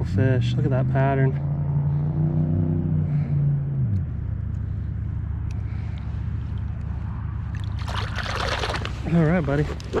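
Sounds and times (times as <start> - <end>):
water pouring over spillway: 7.6 - 9.0.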